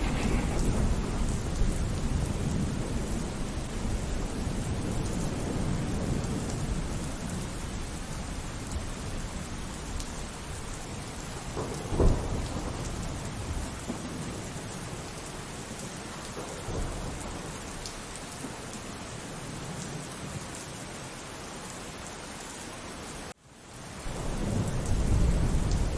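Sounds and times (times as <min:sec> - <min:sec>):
loud thunderclap: 0:00.0 - 0:07.0, 0:11.4 - 0:14.4, 0:24.1 - 0:25.9
rolling thunder: 0:00.0 - 0:15.0, 0:24.0 - 0:25.9
steady rainfall: 0:00.0 - 0:25.9.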